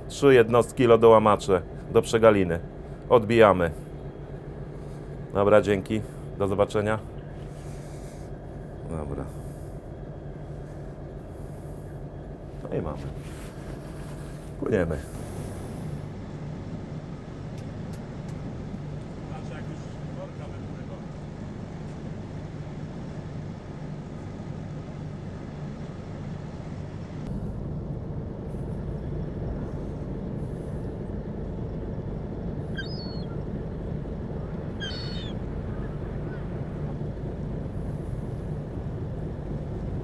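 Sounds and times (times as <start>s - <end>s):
ship engine humming: 0.0s - 40.0s
high chirps: 32.7s - 33.5s, 34.8s - 35.4s.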